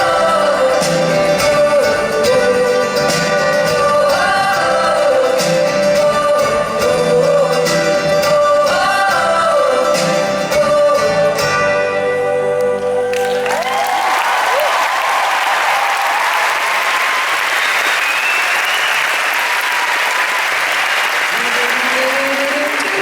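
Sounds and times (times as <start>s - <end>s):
wordless vocal harmonies: 0.0s - 13.8s, 21.3s - 23.0s
guitar: 0.0s - 14.6s
audience applause and cheering: 13.1s - 23.0s.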